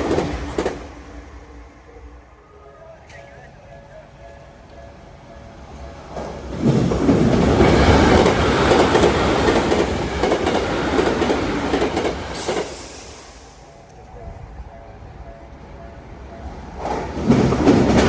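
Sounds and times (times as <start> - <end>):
wheels clicking over rail joints: 0.0 - 1.6, 4.6 - 13.0
electric train passing: 0.0 - 18.0.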